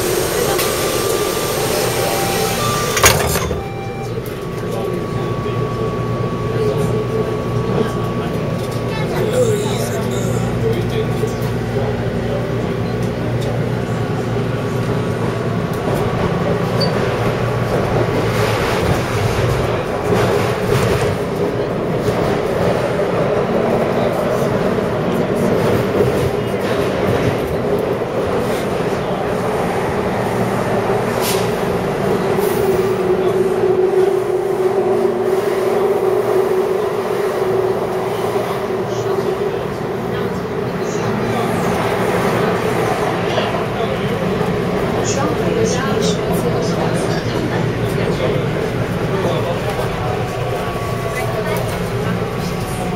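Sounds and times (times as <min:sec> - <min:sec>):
metro train rumbling and humming: 0:00.0 - 0:52.9
mid-pitched tone: 0:01.5 - 0:08.2.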